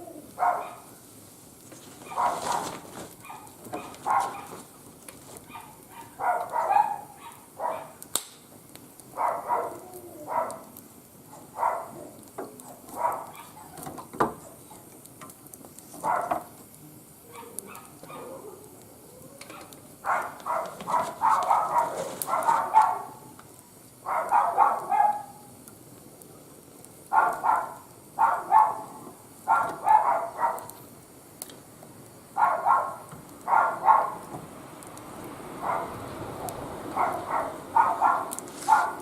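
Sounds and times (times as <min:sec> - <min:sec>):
dog barking: 0:00.4 - 0:00.9, 0:02.0 - 0:04.6, 0:05.5 - 0:08.0, 0:09.2 - 0:10.7, 0:11.3 - 0:12.1, 0:12.9 - 0:13.8, 0:16.0 - 0:16.5, 0:17.3 - 0:18.4, 0:19.5 - 0:23.3, 0:24.0 - 0:25.4, 0:27.1 - 0:30.8, 0:32.4 - 0:34.2, 0:35.6 - 0:39.0.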